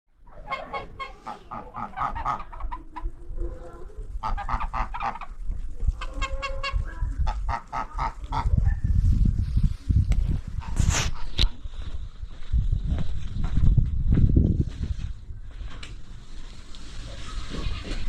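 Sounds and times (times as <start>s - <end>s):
geese honking: 0.3s - 8.7s.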